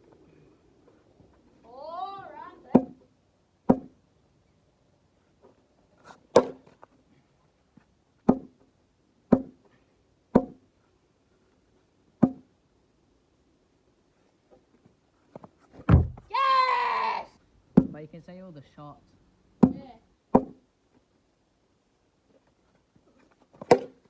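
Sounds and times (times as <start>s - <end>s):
ball knocking on hard surface: 3.7s - 3.9s, 8.3s - 8.5s, 9.3s - 9.6s, 10.4s - 10.6s, 12.2s - 12.4s, 15.9s - 16.3s, 17.8s - 18.0s, 19.6s - 19.8s, 20.4s - 20.6s.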